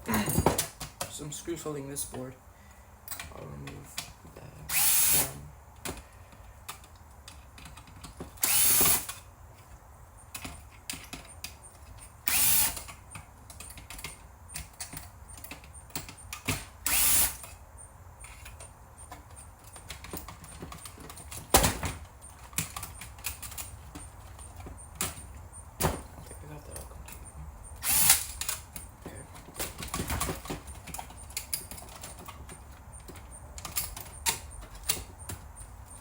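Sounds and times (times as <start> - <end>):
small clicks of screws and parts: 3.1 - 17.6, 18.2 - 21.5, 22.4 - 25.3, 26.7 - 36.0
power screwdriver whirring: 4.7 - 5.4, 8.4 - 9.2, 12.3 - 12.9, 16.8 - 17.5, 27.8 - 28.6.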